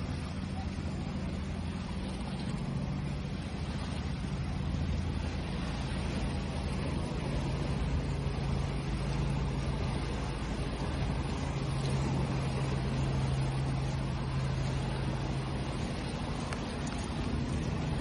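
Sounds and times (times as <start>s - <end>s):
low motor hum: 0.0s - 18.0s
sea waves rushing: 0.0s - 18.0s.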